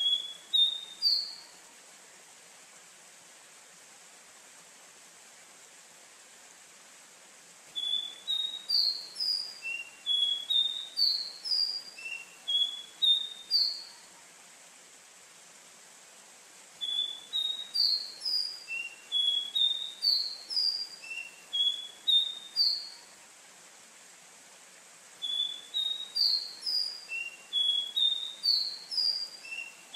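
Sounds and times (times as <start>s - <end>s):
small bird singing high notes: 0.0s - 1.4s, 7.8s - 14.0s, 16.8s - 23.0s, 25.2s - 29.9s
faint steady hiss: 0.0s - 29.9s.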